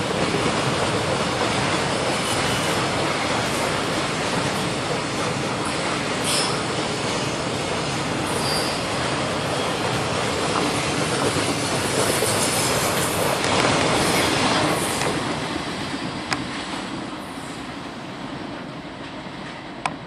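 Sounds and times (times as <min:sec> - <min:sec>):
freight train wagons rolling on rails: 0:00.0 - 0:20.0.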